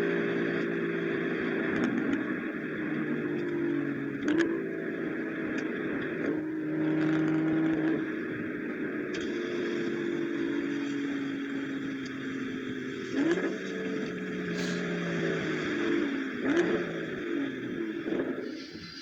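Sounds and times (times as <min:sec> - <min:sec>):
car engine at speed: 0:00.0 - 0:19.0
exhaust crack at gear change: 0:01.5 - 0:04.6.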